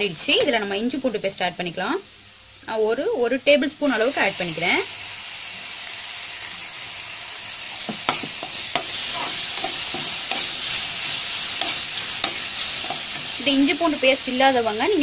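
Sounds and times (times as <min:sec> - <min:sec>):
onions sizzling in hot oil: 0:00.0 - 0:15.0
metal ladle scraping a pan: 0:07.8 - 0:13.4.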